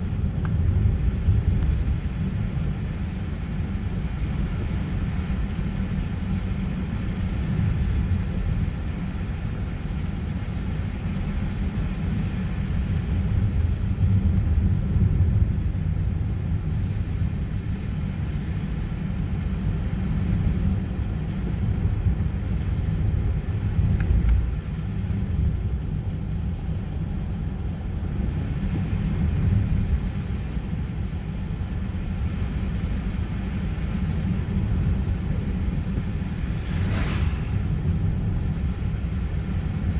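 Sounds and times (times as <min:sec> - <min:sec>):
car engine and tyre rumble: 0:00.0 - 0:39.9
faint ticks: 0:00.4 - 0:00.8, 0:09.4 - 0:10.2.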